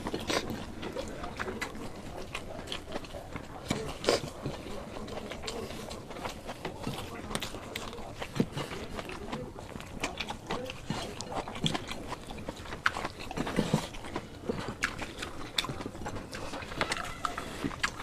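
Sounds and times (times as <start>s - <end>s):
mouth clicks and smacks: 0.0s - 18.0s
people chewing and biting: 0.0s - 18.0s.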